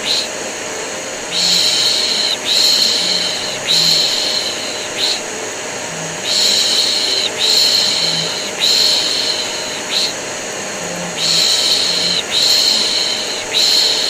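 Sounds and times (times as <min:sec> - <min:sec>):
vacuum cleaner whirring: 0:00.0 - 0:14.0
person shushing: 0:05.9 - 0:14.0.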